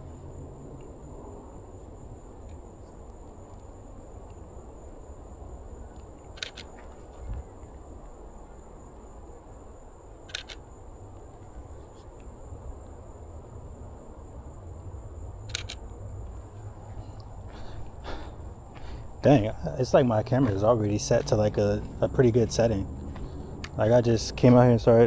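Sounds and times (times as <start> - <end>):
camera shutter double click: 6.4 - 6.8, 10.3 - 10.6, 15.5 - 15.8.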